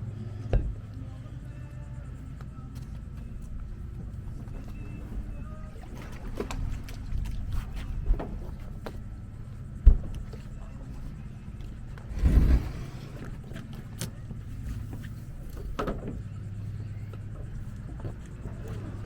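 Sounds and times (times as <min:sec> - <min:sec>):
steady low hum: 0:00.0 - 0:19.0
knocks on a dinghy: 0:00.5 - 0:00.8.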